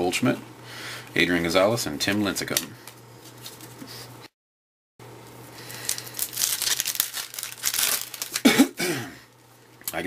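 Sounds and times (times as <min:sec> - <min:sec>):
foil wrapper crinkling and tearing: 0:05.6 - 0:08.6.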